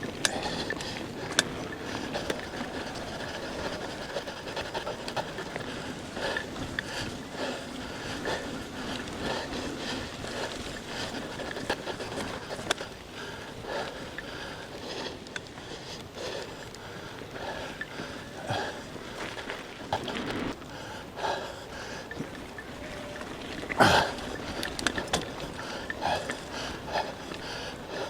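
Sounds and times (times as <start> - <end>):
person panting hard: 0.0 - 19.4, 20.0 - 28.0.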